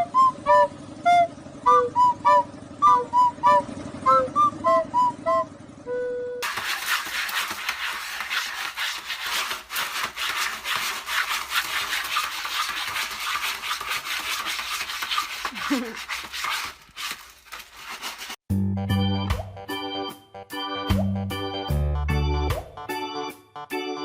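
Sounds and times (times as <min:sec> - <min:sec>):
rapid scratching: 0:06.4 - 0:18.4.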